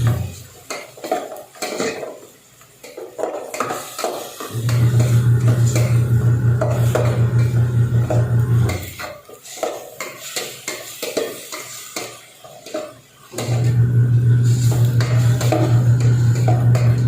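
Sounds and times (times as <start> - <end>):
metal utensil scraping a pan: 0.0 - 17.0.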